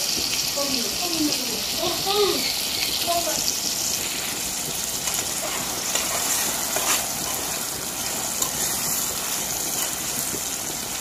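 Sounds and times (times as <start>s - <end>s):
food sizzling in hot oil: 0.0s - 11.0s
metal spoon stirring: 5.0s - 10.4s.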